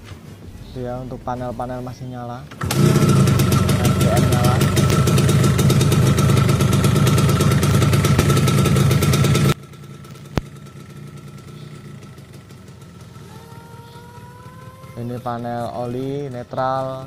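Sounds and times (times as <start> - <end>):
two-stroke engine idling: 2.5 - 17.0.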